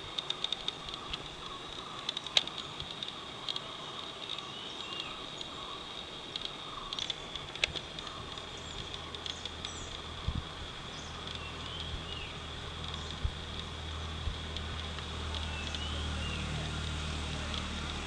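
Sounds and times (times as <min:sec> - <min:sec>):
sharp clicks: 0:06.3 - 0:10.5, 0:11.1 - 0:18.0
bird chirps: 0:10.9 - 0:13.3, 0:15.3 - 0:16.9.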